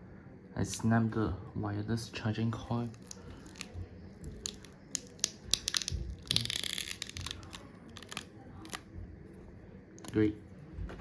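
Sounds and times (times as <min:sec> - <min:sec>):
adhesive tearing: 0:02.9 - 0:08.8.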